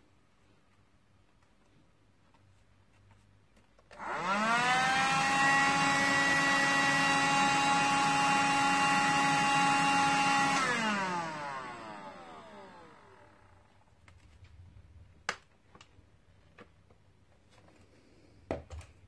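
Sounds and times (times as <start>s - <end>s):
handheld vacuum cleaner motor whine: 3.9s - 13.7s.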